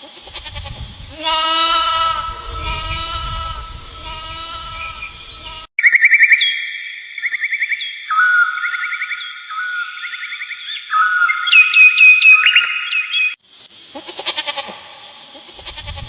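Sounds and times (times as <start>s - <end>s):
low rumble: 0.6s - 5.7s
long drawn-out animal call: 13.9s - 16.0s.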